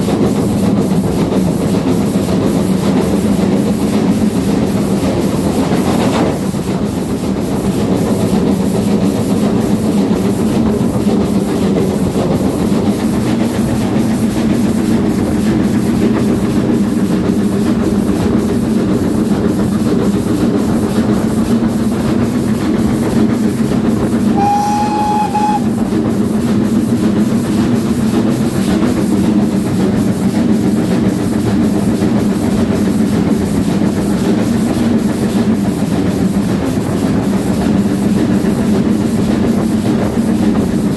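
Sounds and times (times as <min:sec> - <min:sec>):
steam train rumble and rail clatter: 0:00.0 - 0:40.9
steam whistle: 0:24.2 - 0:26.5.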